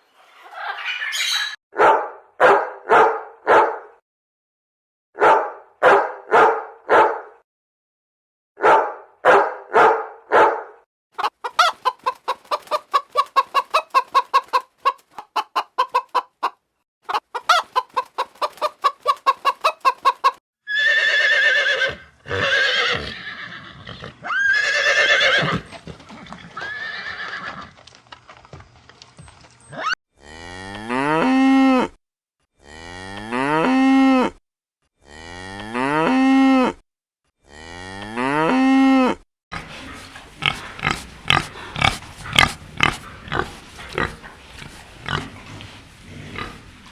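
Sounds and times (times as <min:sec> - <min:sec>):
clucking: 0:11.2 - 0:20.4, 0:39.6 - 0:46.9.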